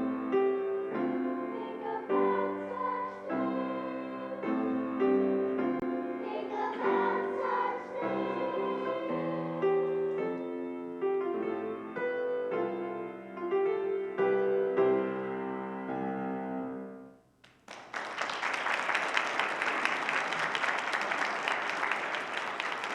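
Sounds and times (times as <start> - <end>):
piano playing chords: 0.0 - 17.2.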